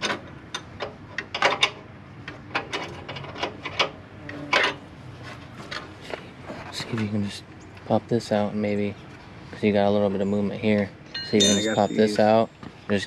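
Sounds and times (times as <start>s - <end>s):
hand tools clanking on metal: 11.1s - 12.4s.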